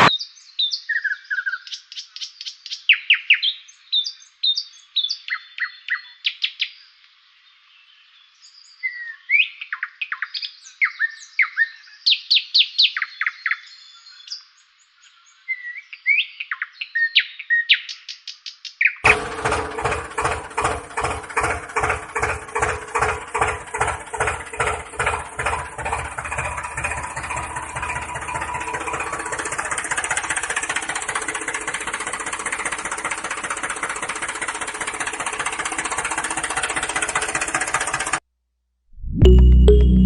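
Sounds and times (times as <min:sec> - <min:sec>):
small tractor engine chugging: 0:19.0 - 0:38.2.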